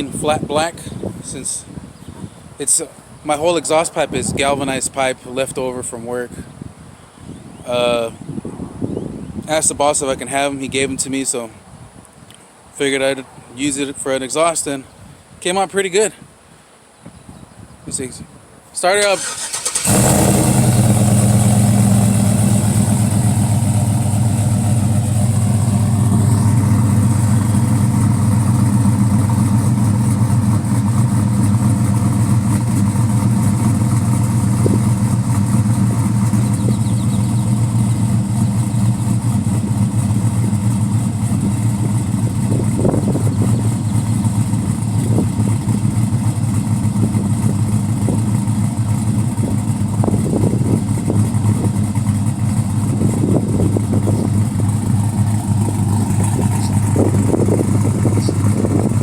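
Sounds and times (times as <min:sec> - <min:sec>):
car engine idling: 0:19.2 - 0:59.0.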